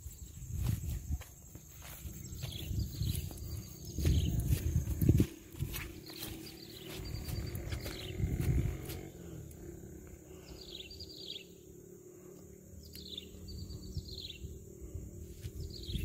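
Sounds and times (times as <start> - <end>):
birds chirping: 0.1 - 16.0
dull low rumble: 1.9 - 11.0.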